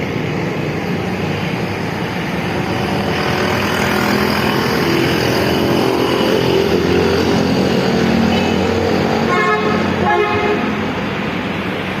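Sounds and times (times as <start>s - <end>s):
vehicle engine and traffic noise: 0.0s - 12.0s.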